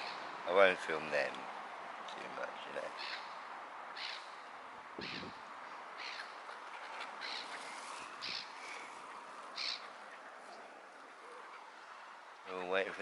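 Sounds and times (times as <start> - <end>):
steady background hiss: 0.0 - 13.0
harsh high bird calls: 2.9 - 3.4, 4.0 - 4.4, 5.0 - 5.4, 6.0 - 12.1.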